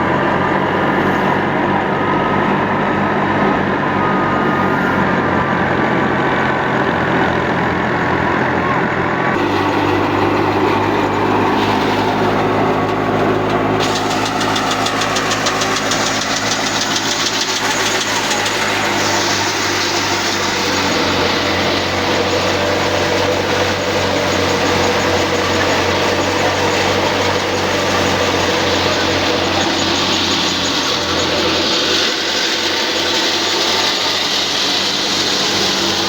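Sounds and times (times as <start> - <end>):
diesel tractor engine running: 0.0 - 36.0
fast high-pitched clatter: 9.4 - 36.0.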